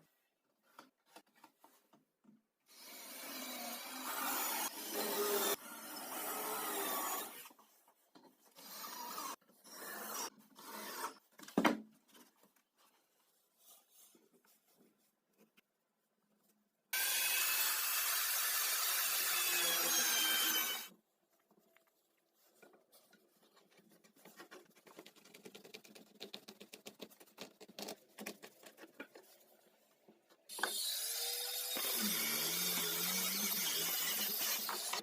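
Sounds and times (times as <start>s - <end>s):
power tool on wood: 2.8s - 7.4s, 17.0s - 20.9s, 30.5s - 35.0s.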